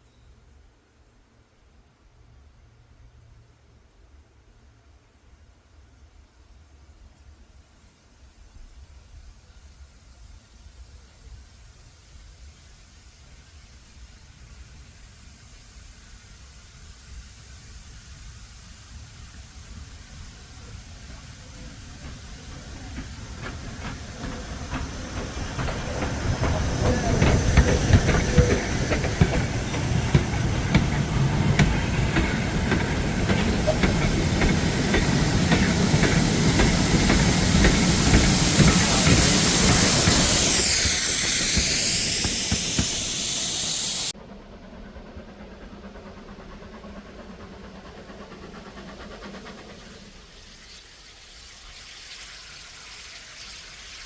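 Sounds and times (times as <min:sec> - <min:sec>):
steam hissing: 0:08.8 - 0:44.2, 0:45.1 - 0:54.0
wheels clattering on rails: 0:21.1 - 0:44.1.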